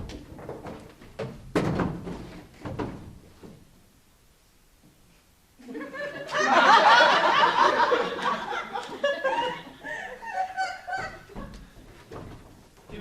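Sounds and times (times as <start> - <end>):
audience laughing: 5.6 - 11.6.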